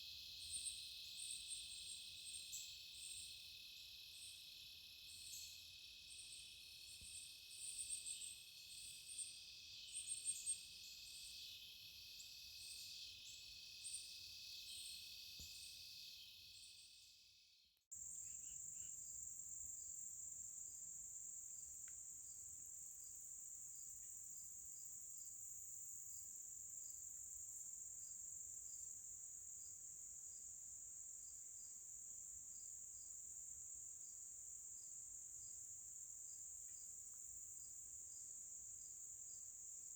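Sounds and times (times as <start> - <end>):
cricket trill with chirps: 0.0 - 39.9
insect chorus trilling: 0.0 - 39.9.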